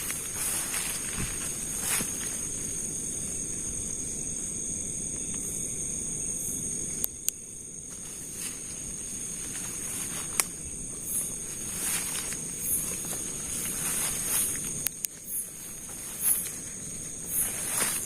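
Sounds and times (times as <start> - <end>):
night insects trilling: 0.0 - 18.0
sharp clicks: 14.8 - 15.2.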